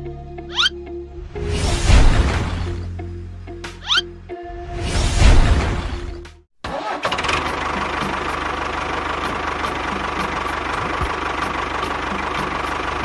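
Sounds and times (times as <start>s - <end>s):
engine whine: 6.8s - 13.0s
small engine knocking: 7.0s - 13.0s.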